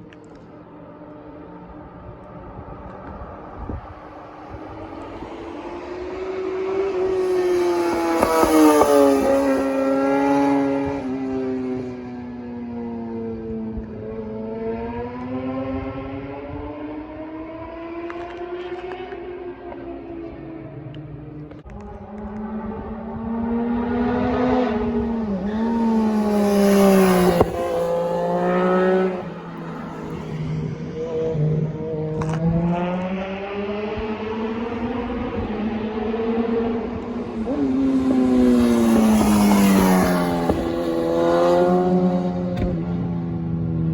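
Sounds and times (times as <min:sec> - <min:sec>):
high-revving engine passing by: 0:01.1 - 0:20.7, 0:21.4 - 0:43.9.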